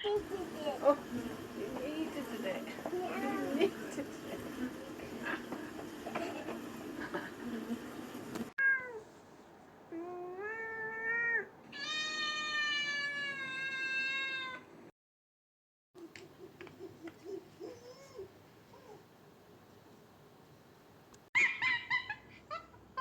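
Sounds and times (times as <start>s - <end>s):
busy noise: 0.0s - 8.5s
animal crying: 10.0s - 14.7s, 21.4s - 22.3s.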